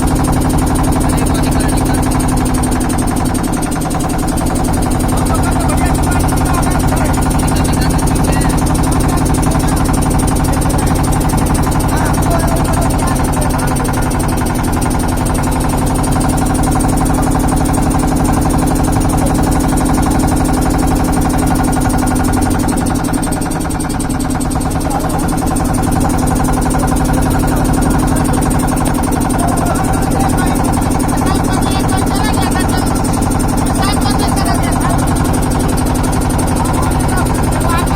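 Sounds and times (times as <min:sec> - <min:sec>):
engine-like drone: 0:00.0 - 0:37.9.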